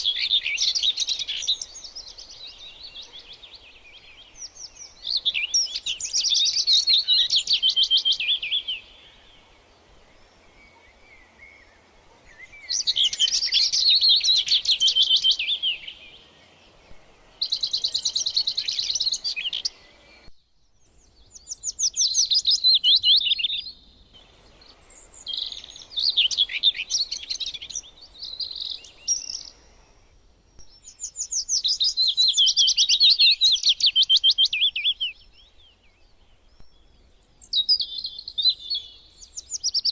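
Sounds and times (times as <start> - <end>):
songbird trilling: 0.0 - 9.4, 12.3 - 16.2, 24.7 - 29.6.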